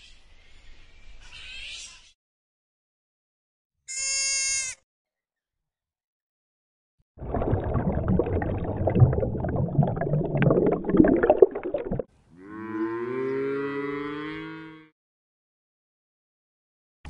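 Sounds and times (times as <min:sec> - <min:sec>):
cows mooing: 0:12.4 - 0:14.9.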